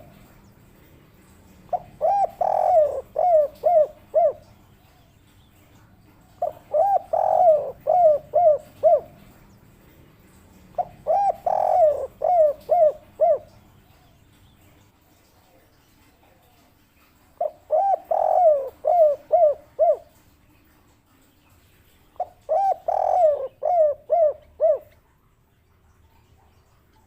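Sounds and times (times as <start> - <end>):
dove cooing: 1.1 - 5.0, 6.2 - 9.5, 10.2 - 14.0, 17.4 - 20.2, 22.2 - 25.1.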